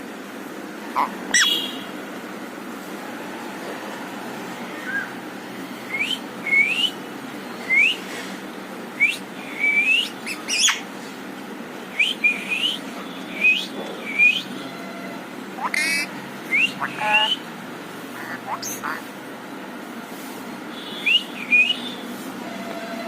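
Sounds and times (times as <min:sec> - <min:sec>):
parrot squeak: 0:01.0 - 0:01.6, 0:10.0 - 0:10.8, 0:15.6 - 0:17.4, 0:18.2 - 0:19.0
parrot whistling: 0:01.0 - 0:01.7, 0:05.9 - 0:07.0, 0:09.0 - 0:10.8, 0:12.0 - 0:14.5, 0:15.6 - 0:17.5, 0:18.2 - 0:19.0, 0:21.0 - 0:21.9.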